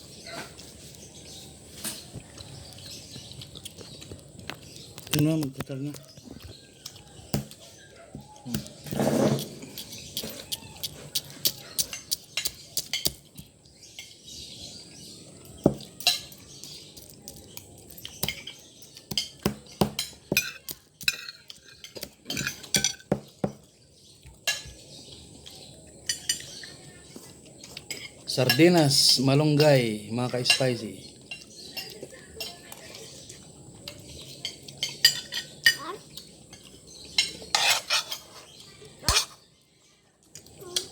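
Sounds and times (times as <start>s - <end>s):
cutlery clinking on a plate: 6.8s - 14.2s, 15.7s - 16.8s, 18.0s - 23.6s, 24.4s - 24.8s, 33.9s - 35.8s, 36.5s - 39.4s.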